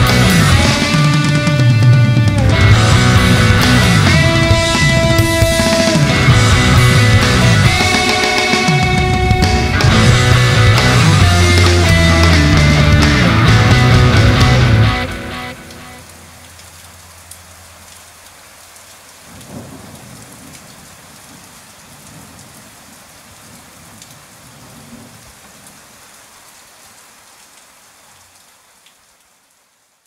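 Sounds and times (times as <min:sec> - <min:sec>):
thunder rumbling: 0:00.0 - 0:15.5, 0:19.3 - 0:25.4
steady rain: 0:00.0 - 0:30.0.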